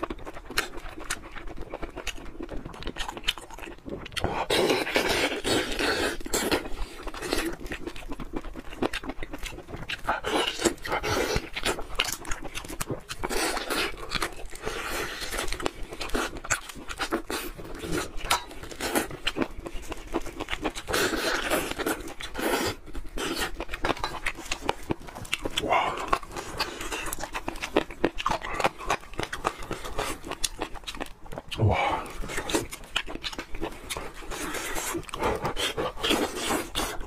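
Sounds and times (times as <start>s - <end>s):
chewing and lip smacking: 0.0s - 37.0s.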